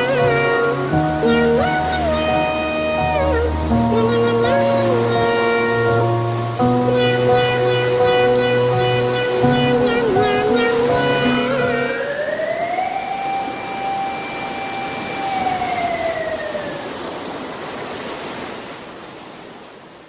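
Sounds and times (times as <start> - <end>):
steady hiss: 0.0 - 12.0
music: 0.0 - 12.2
rising and falling siren tone: 11.8 - 16.9.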